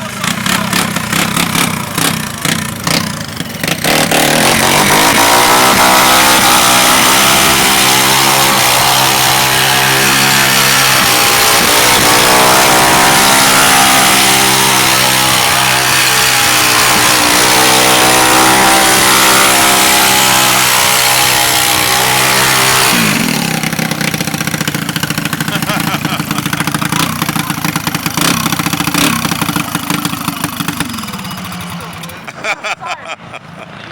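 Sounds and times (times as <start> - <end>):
small engine revving high: 0.0 - 31.6.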